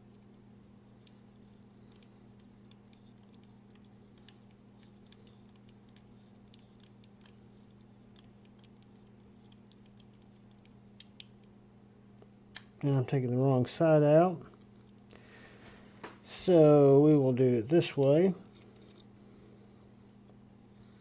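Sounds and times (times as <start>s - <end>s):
low steady hum: 0.0s - 21.0s
small metal parts clicking: 18.4s - 19.1s.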